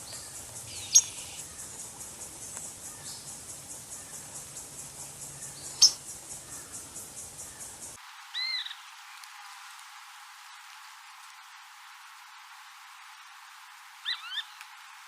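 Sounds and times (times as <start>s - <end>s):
pulsing insect trill: 0.0s - 8.0s
sharp high bird chirp: 5.7s - 6.0s.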